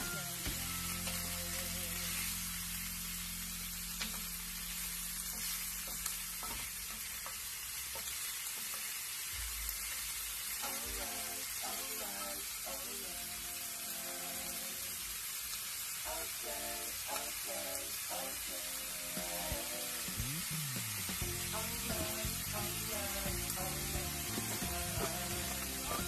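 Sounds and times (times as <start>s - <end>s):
meat sizzling in a pan: 0.0s - 26.0s
utensil tapping pan: 5.3s - 9.0s.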